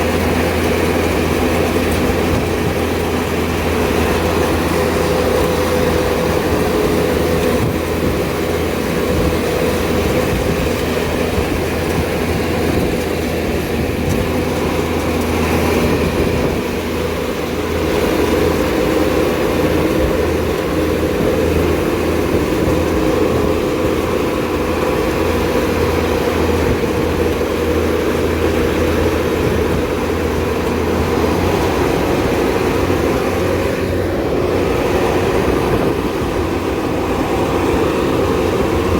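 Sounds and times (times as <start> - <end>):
combine harvester engine droning: 0.0 - 38.9.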